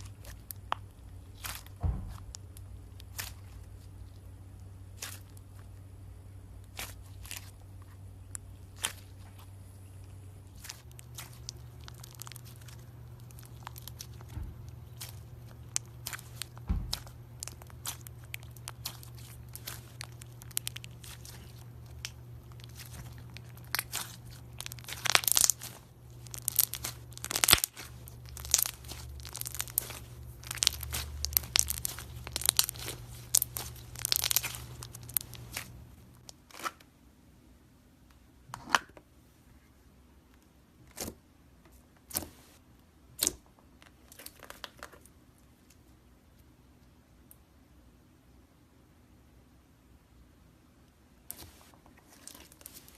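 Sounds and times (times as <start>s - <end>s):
slime crackling and popping: 0.0s - 5.8s, 10.5s - 36.8s, 52.1s - 52.9s
low hum: 0.0s - 36.3s.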